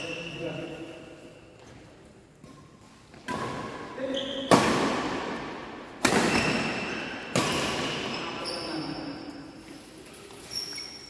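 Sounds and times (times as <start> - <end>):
racket hitting shuttlecock: 2.4 - 8.4.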